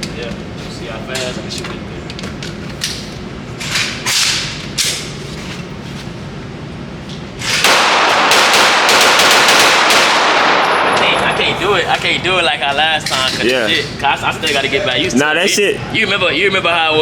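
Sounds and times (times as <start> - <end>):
rapid semi-automatic gunfire: 7.6 - 11.2
single gunshots: 7.6 - 11.6.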